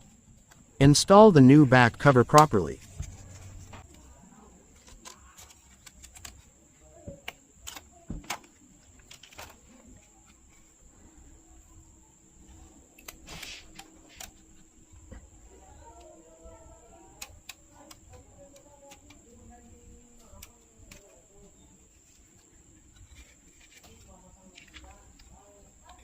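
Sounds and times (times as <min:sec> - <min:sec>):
small parts clicking and tapping: 0:04.7 - 0:10.4, 0:13.0 - 0:21.2.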